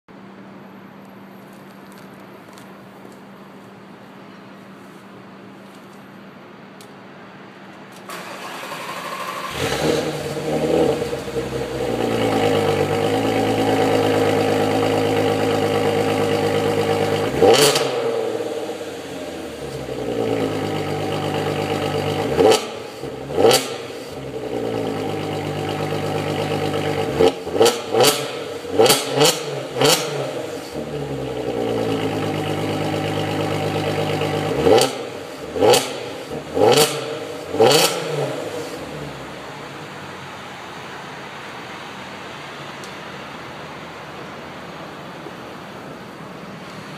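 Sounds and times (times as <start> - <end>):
car engine idling: 8.1 - 41.6.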